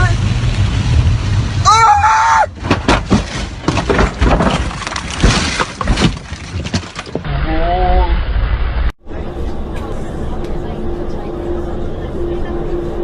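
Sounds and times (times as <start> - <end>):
car crash impacts: 2.5 - 7.2
debris clattering: 2.5 - 7.3
glass shattering: 2.8 - 7.2.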